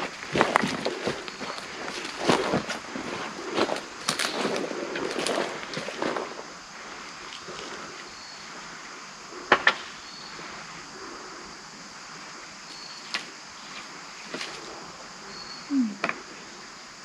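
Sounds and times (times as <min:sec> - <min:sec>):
footsteps on loose stones: 0:00.0 - 0:08.1
steady outdoor hiss: 0:00.0 - 0:17.0.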